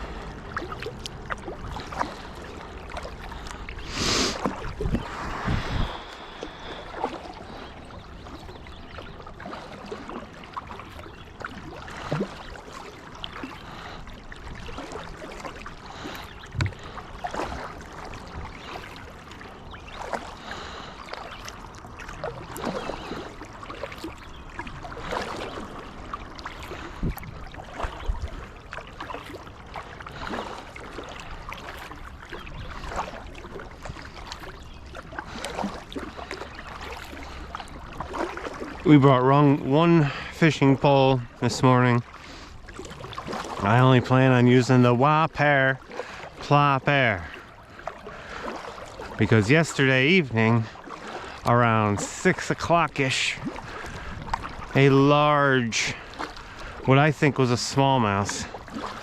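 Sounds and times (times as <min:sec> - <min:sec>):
paddle strokes in water: 0:00.0 - 0:59.0
water splashing and dripping: 0:00.0 - 0:59.0.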